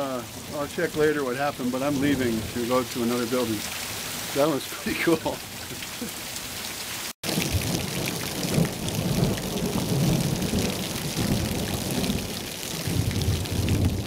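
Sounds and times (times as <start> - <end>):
heavy rain splashing: 0.0 - 14.0
low rumble of thunder: 7.3 - 14.0.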